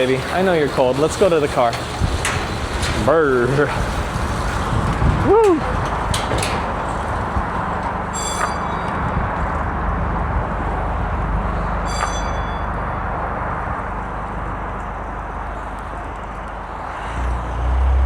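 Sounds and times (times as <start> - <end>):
traffic rumble: 0.0 - 18.0
short high-pitched chirps: 11.9 - 12.8.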